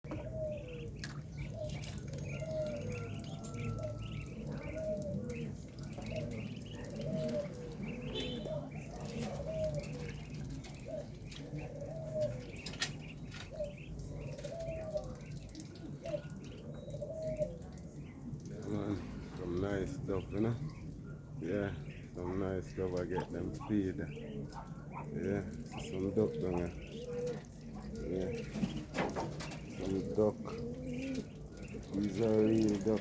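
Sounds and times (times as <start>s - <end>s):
birds cooing: 0.0s - 33.0s
higher bird chirps: 0.1s - 17.5s.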